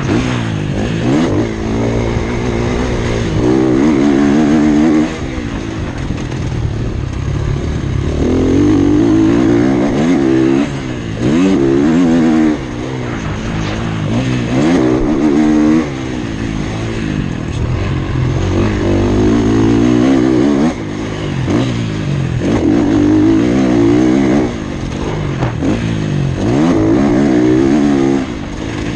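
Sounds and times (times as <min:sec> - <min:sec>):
motocross bike engine revving: 0:00.0 - 0:28.9.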